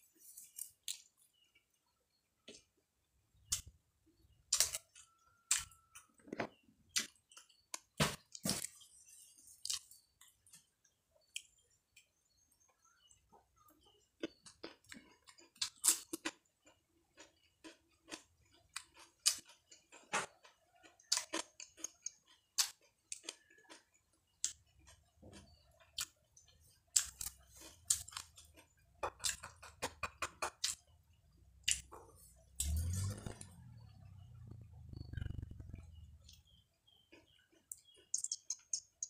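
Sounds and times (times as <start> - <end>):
crunchy chewing: 4.5 - 39.0
low rumble: 32.6 - 36.4
fingers handling pods: 37.1 - 39.0.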